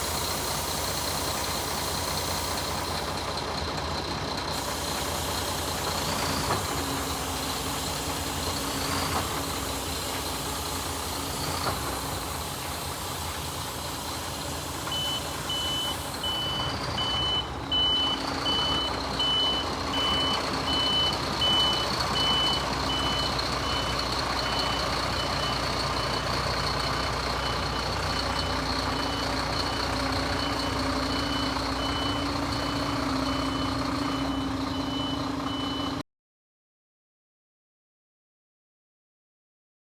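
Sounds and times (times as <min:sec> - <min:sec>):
truck diesel engine running: 0:00.0 - 0:36.0
reversing alarm beeping: 0:04.8 - 0:36.0.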